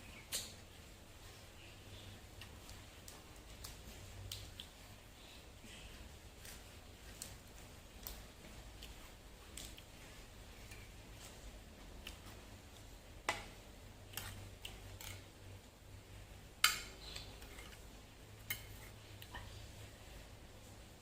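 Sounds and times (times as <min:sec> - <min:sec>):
cutlery clinking against dishes: 0:16.6 - 0:17.8.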